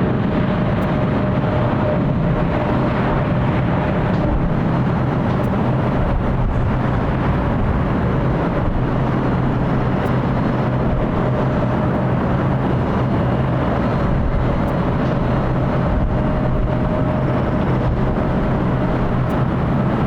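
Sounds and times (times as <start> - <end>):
jet engine hum: 0.0 - 20.0.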